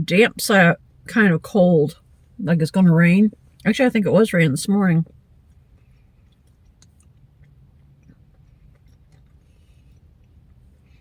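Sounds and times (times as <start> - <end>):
low steady hum: 0.0 - 11.0
chewing nuts crunches: 5.5 - 11.0.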